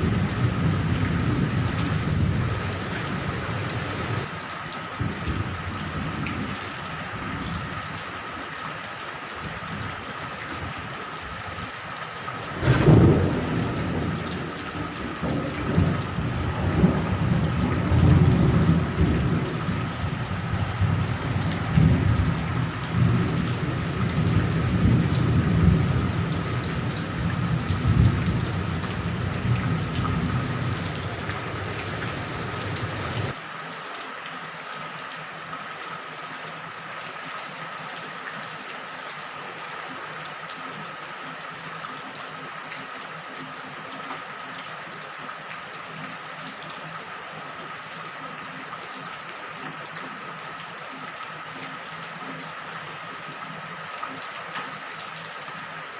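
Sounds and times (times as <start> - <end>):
thunder rumbling: 0.0 - 4.3, 12.4 - 33.4
steady rain: 0.0 - 55.9.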